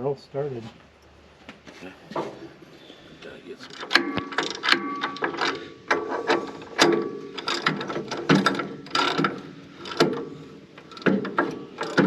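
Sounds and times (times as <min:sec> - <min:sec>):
sharp metal clanks: 0:03.7 - 0:12.0
ratchet wrench clicking: 0:06.5 - 0:10.2, 0:10.8 - 0:12.0.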